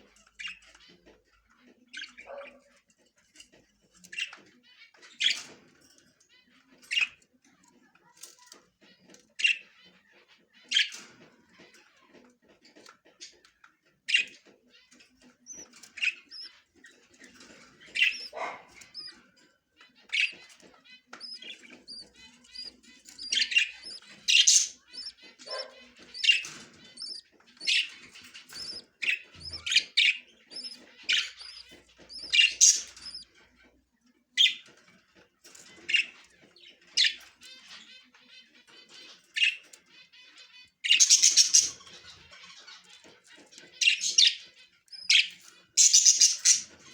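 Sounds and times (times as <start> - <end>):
budgerigars chirping: 0.0 - 7.2, 8.8 - 46.9
soft rapid warbling chatter: 0.0 - 46.9.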